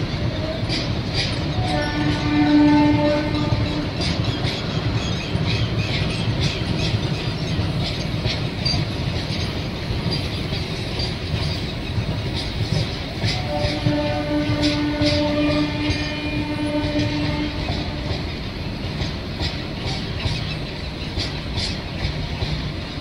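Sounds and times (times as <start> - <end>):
train rumble: 0.0 - 23.0
train wheels clattering: 0.0 - 23.0
locomotive horn: 1.6 - 4.1, 13.3 - 18.3.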